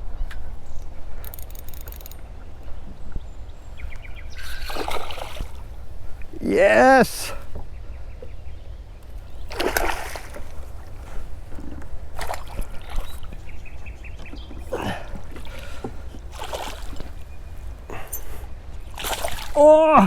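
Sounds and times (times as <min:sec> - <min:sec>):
water splashing around kayak: 0:03.8 - 0:06.4, 0:09.3 - 0:18.1, 0:18.8 - 0:20.0.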